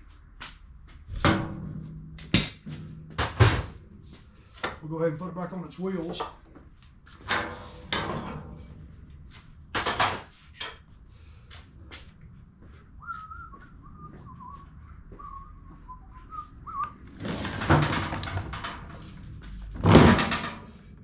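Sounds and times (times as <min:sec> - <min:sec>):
person whistling a tune: 0:13.0 - 0:17.0.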